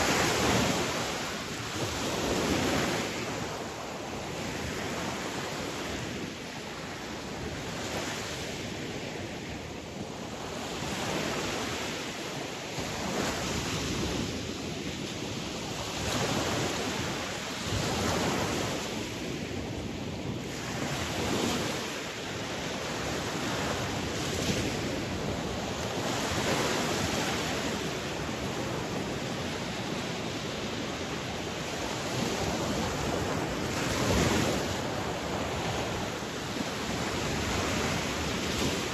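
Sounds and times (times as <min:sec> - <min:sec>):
sea waves breaking on shore: 0:00.0 - 0:38.9.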